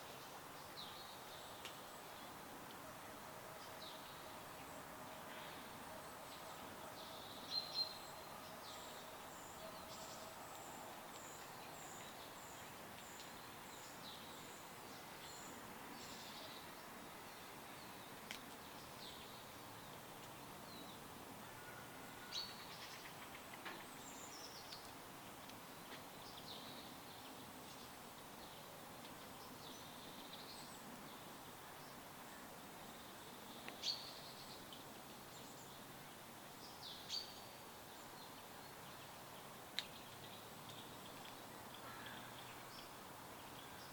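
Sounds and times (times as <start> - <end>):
songbirds chirping: 0.0 - 43.9
steady soft hiss: 0.0 - 43.9.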